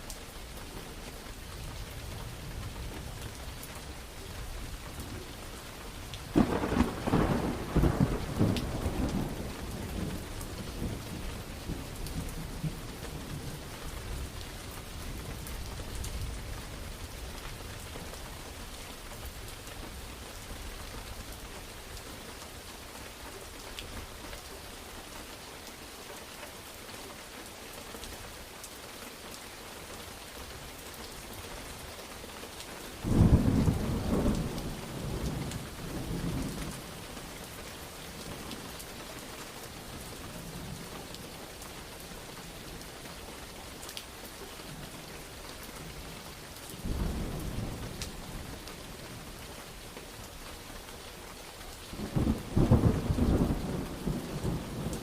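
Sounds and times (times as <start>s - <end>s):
steady rain: 0.0s - 55.0s
thunder rumbling: 6.3s - 14.4s, 33.0s - 36.9s, 46.8s - 48.6s, 51.9s - 55.0s.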